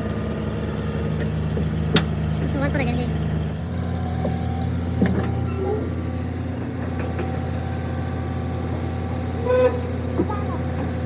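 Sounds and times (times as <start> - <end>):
vehicle engine idling: 0.0 - 11.0
short knocks: 4.1 - 6.0.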